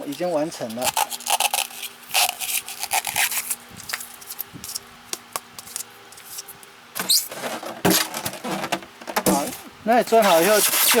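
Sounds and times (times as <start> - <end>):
hands rustling styrofoam box: 5.6 - 11.0.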